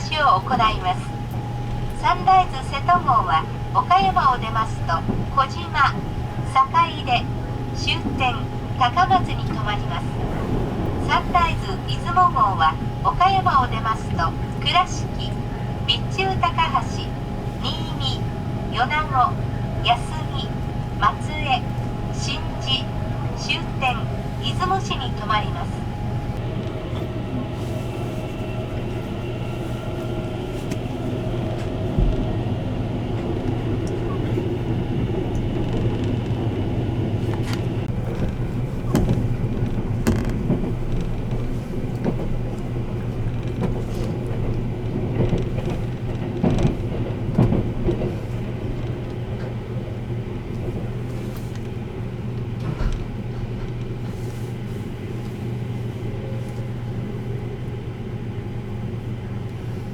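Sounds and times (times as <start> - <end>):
train interior hum and rushing: 0.0 - 59.9.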